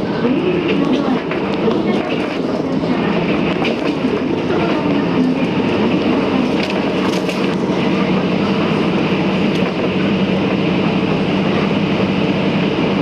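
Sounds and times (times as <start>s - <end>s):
diesel railcar hum: 0.0s - 13.0s
wheels rushing on rail: 0.0s - 13.0s
track clicks: 0.5s - 10.1s.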